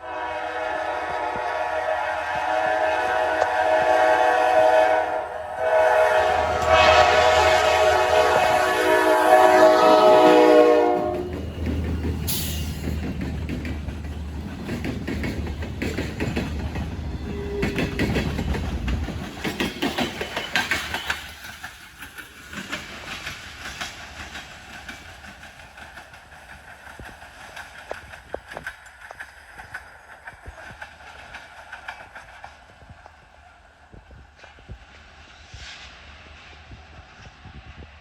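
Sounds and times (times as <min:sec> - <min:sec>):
train air horn: 0:00.0 - 0:11.4, 0:17.2 - 0:17.9
wheels clicking over rail joints: 0:08.4 - 0:35.0.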